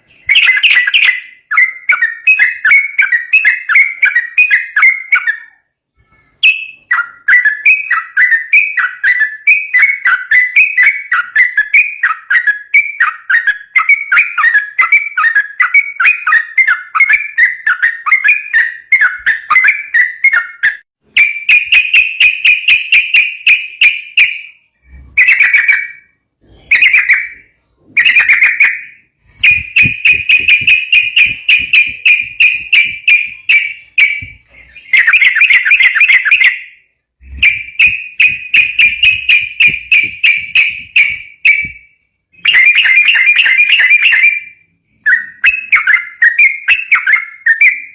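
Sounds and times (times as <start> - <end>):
bulbul singing chattering whistles: 0.0 - 47.9.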